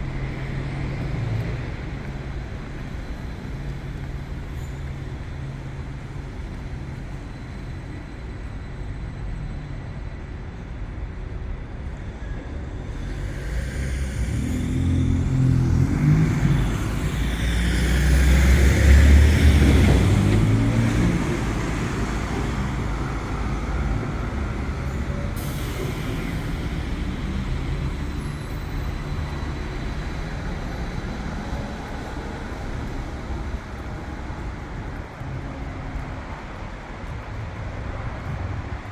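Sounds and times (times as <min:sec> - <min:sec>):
steady traffic noise: 0:00.0 - 0:38.9
large vehicle engine rumble: 0:10.4 - 0:38.9.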